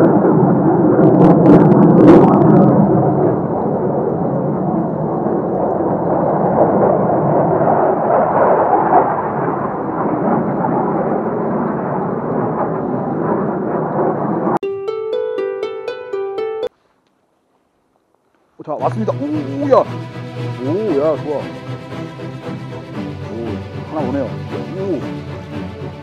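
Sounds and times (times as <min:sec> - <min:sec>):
fighter jets roaring overhead: 0:00.0 - 0:14.6
plucked string music: 0:14.6 - 0:16.8, 0:18.8 - 0:26.0.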